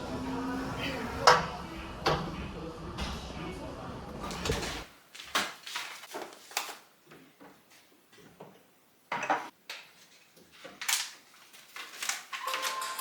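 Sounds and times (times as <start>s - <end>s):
household objects clunking: 4.1s - 4.9s.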